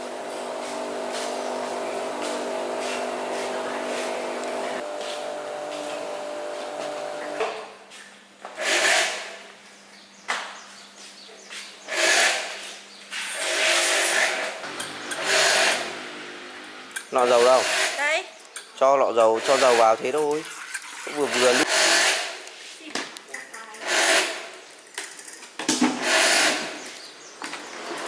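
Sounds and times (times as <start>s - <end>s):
small engine running: 0.0s - 7.4s, 13.8s - 18.0s.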